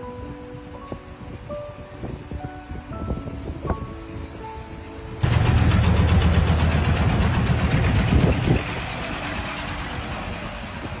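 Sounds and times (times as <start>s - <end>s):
engine running with pulsing hum: 5.2s - 11.0s.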